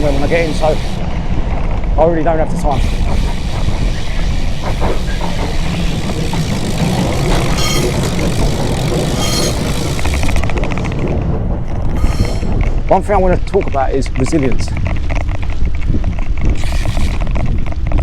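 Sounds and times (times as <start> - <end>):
bicycle freewheel ticking: 0.0 - 1.0, 2.7 - 10.9, 16.6 - 17.9
bicycle road noise: 0.0 - 18.0
wind buffeting microphone: 0.0 - 18.0
traffic: 2.6 - 12.8.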